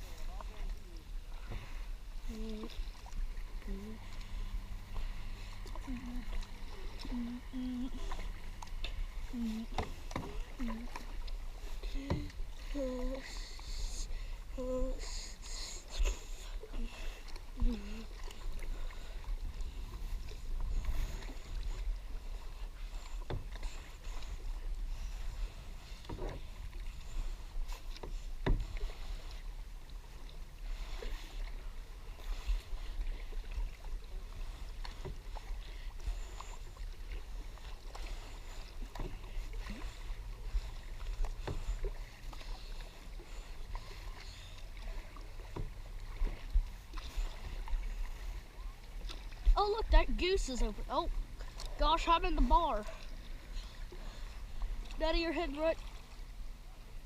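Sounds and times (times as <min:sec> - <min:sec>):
paddle strokes in water: 0:00.0 - 0:57.0
paddle knocking against hull: 0:09.6 - 0:11.3, 0:23.0 - 0:23.8, 0:26.0 - 0:26.9, 0:27.8 - 0:28.9, 0:44.9 - 0:47.9.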